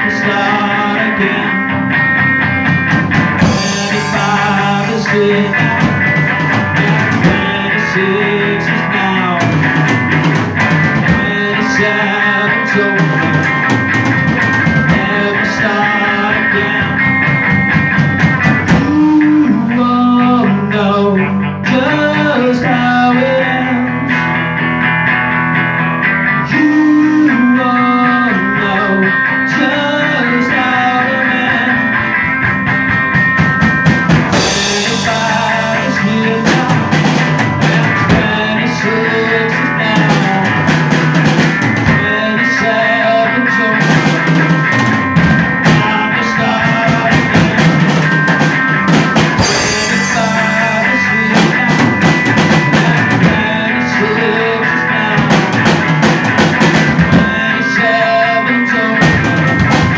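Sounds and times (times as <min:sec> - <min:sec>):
drum kit: 0:00.0 - 0:59.9
electric guitars: 0:00.0 - 0:59.9.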